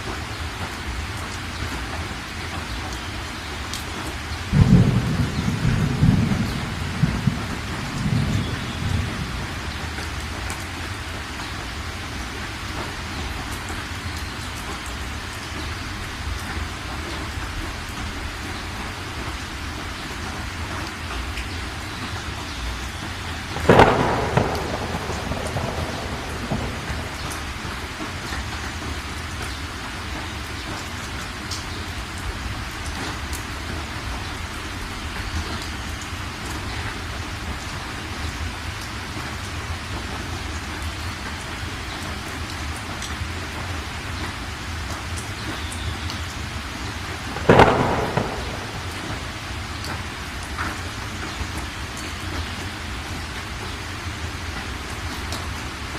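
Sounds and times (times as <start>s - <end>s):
heavy rain falling: 0.0s - 55.9s
thunder clap: 4.5s - 10.7s, 23.4s - 29.1s, 47.2s - 51.0s.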